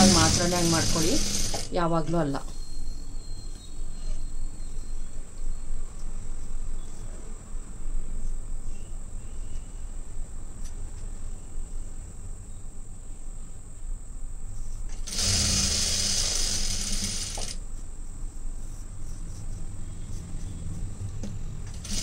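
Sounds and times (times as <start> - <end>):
sewing machine stitching: 0.0 - 1.8, 15.0 - 17.6, 21.7 - 22.0
faint high whine: 0.0 - 22.0
steady low hum: 0.0 - 22.0.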